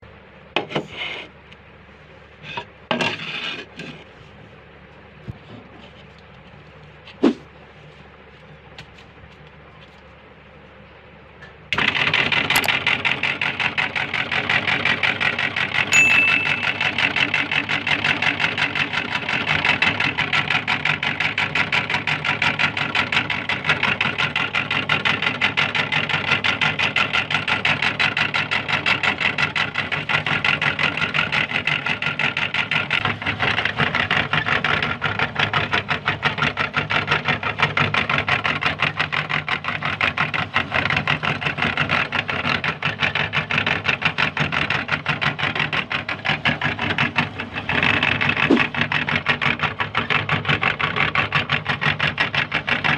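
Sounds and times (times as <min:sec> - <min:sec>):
electric meat grinder running: 0:11.8 - 0:15.9, 0:16.5 - 0:52.9.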